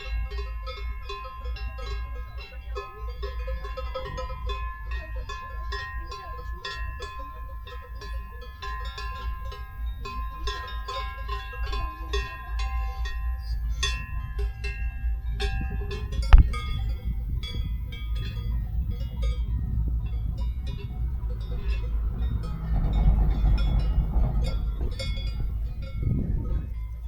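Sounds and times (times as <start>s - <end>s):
cowbells clanking: 0.0s - 27.0s
steady low rumble: 0.0s - 27.0s.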